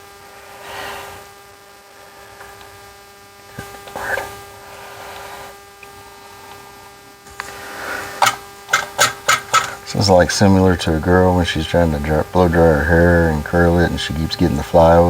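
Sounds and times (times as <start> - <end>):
electrical hum: 0.0 - 15.0
faint whine: 0.0 - 15.0
soft hissing: 0.3 - 2.5, 3.6 - 6.7, 7.4 - 12.8.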